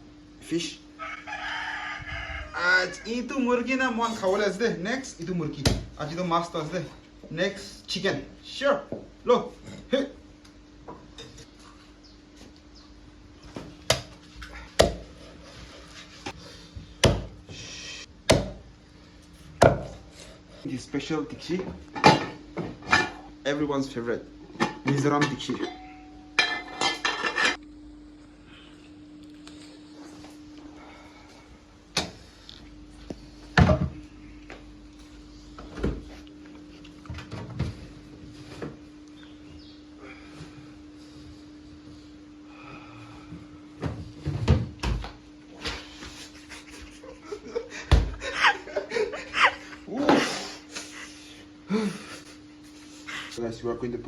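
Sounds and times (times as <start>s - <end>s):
steady low hum: 0.0s - 54.0s
knife chopping on wooden board: 14.8s - 15.0s, 17.0s - 17.4s, 18.3s - 18.6s
kitchen utensils clunking: 24.5s - 27.6s.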